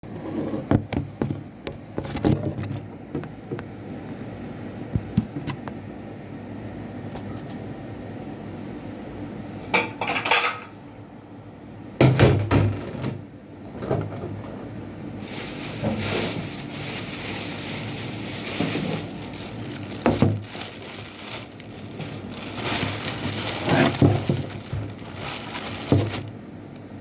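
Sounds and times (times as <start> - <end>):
plates and utensils clinking: 9.8 - 10.8.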